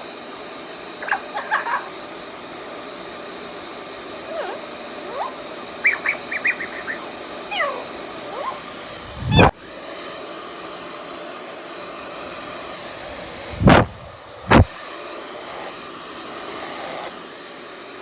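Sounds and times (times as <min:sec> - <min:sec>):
hairdryer blowing: 0:00.0 - 0:18.0
parrot chirping and whistling: 0:01.0 - 0:02.0, 0:04.2 - 0:09.5.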